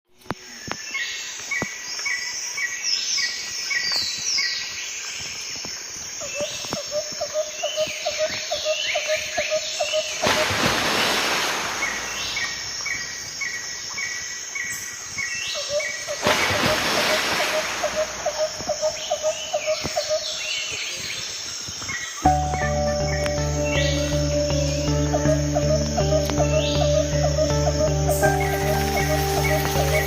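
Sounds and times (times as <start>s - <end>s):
rush of hiss: 10.3s - 12.3s
birds chirping and whistling: 17.6s - 30.0s.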